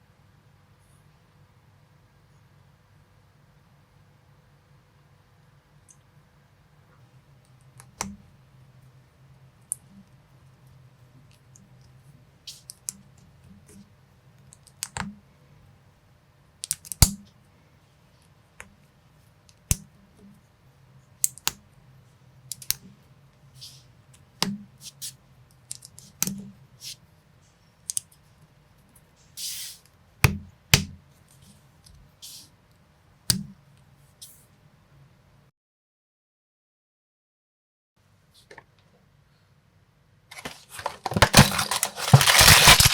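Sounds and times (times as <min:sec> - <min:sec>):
plastic parts scraping rustle: 0:40.3 - 0:42.9
plastic pieces clicking together: 0:40.3 - 0:42.9.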